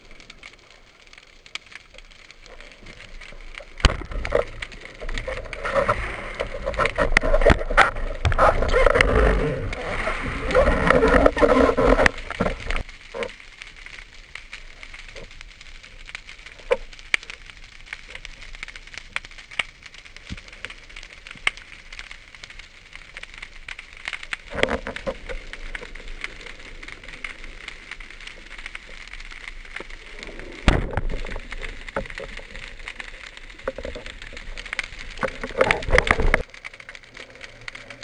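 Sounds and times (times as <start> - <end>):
underwater clicks: 1.4 - 13.4, 24.0 - 38.0.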